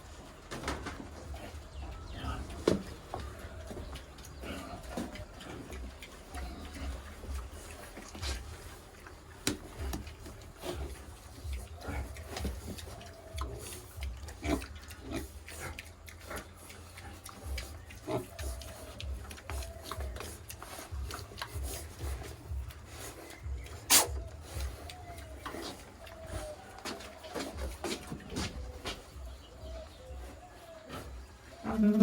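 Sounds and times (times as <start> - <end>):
pigs feeding: 0.0 - 32.0.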